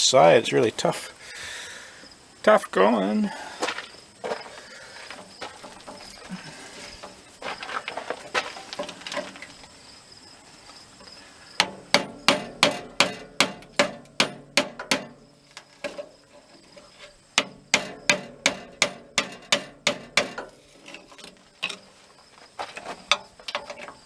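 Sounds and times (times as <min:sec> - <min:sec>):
light tapping and scraping: 0:03.6 - 0:09.7, 0:15.4 - 0:24.0
hammer blows on furnace door: 0:11.6 - 0:15.2.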